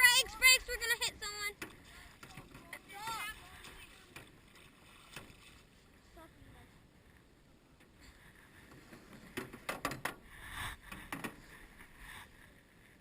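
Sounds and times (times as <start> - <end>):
water splashing: 0.0 - 6.0.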